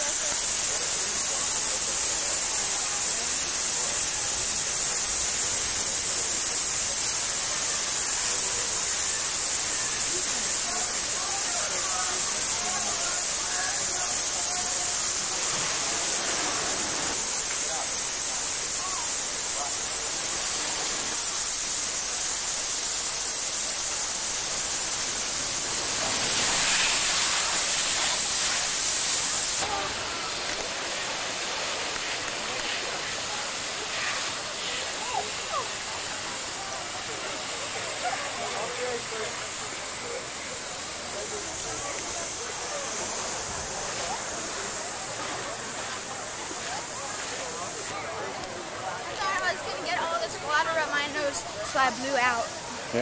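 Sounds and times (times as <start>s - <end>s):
rushing splashing water: 0.0s - 48.0s
faint distant voices: 0.0s - 53.0s.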